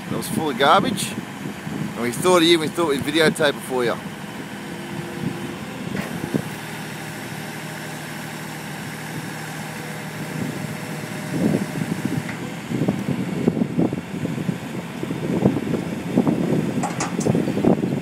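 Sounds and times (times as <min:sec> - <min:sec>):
truck engine humming: 0:00.0 - 0:18.0.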